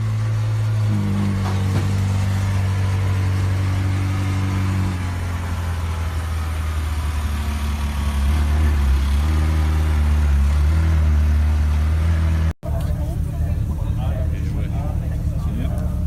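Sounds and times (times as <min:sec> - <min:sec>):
car engine droning at low revs: 0:00.0 - 0:16.0.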